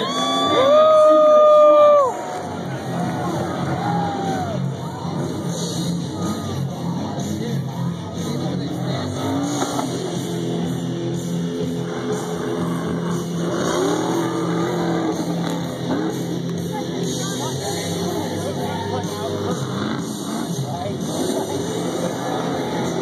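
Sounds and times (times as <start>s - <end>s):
music playing: 0.0s - 23.0s
truck engines revving: 0.0s - 23.0s.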